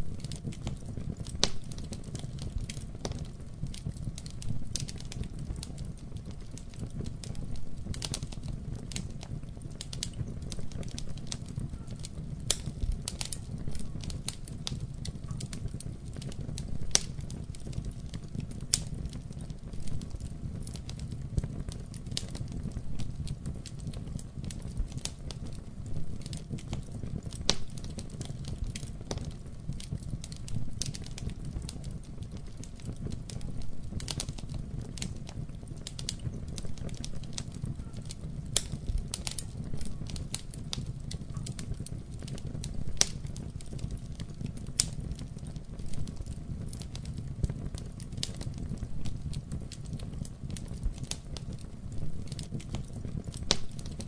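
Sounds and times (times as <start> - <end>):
fire crackling and popping: 0.0 - 54.0
fire flames rumbling: 0.0 - 54.0.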